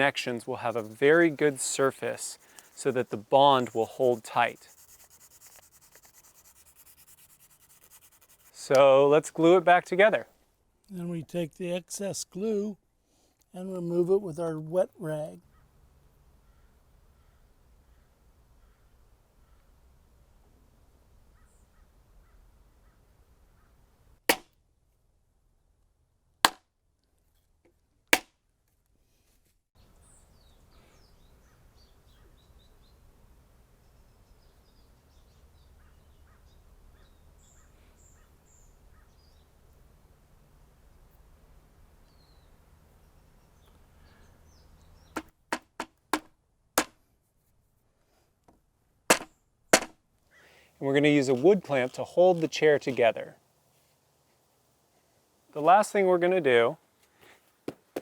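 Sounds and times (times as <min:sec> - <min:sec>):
faint bird calls: 0:15.4 - 0:19.8, 0:34.4 - 0:39.4
rubber mallet knocking on wood: 0:45.2 - 0:46.9, 0:49.1 - 0:50.0
mallet knocking on wood: 0:49.1 - 0:49.9.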